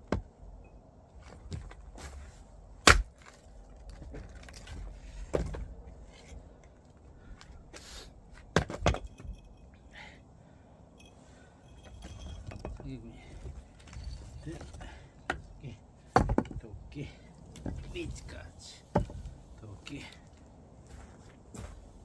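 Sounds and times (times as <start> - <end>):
axe cracking log: 2.8 - 3.3
wood shifting: 11.7 - 21.9.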